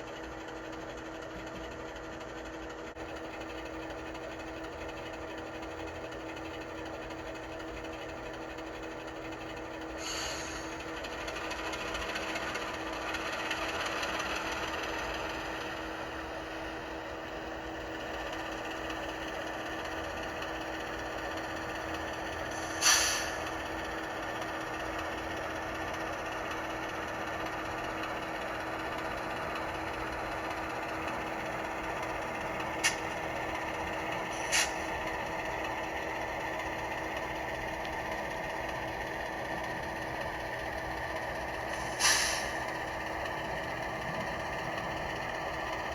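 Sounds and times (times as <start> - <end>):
model locomotive engine sound: 0.0 - 45.9
air release bursts: 10.0 - 10.7, 22.5 - 23.5, 32.8 - 33.1, 34.3 - 34.9, 41.7 - 42.6.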